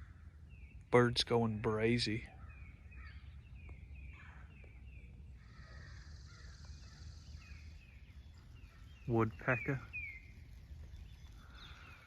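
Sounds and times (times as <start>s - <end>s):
harsh falling bird calls: 0.0s - 12.0s
buzzy bird trill: 5.4s - 12.0s.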